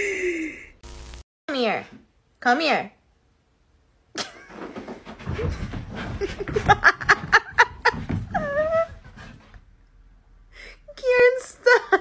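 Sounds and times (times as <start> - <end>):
person laughing: 6.2 - 9.0.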